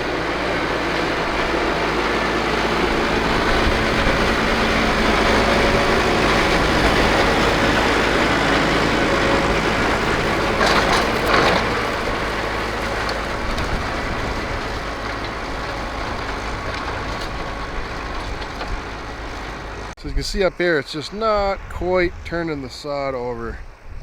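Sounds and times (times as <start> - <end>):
tractor engine running: 0.0 - 21.9.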